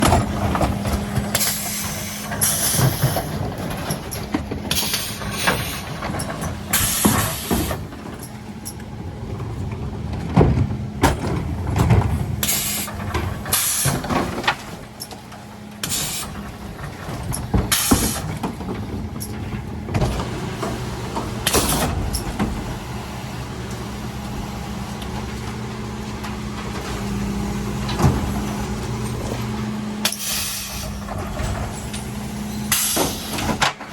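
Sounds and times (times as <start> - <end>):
truck knocks: 0.0 - 23.0, 23.6 - 33.9
truck engine hum: 0.0 - 33.9
air-brake hisses: 12.4 - 12.9, 13.5 - 14.0, 15.8 - 16.4, 30.0 - 31.0.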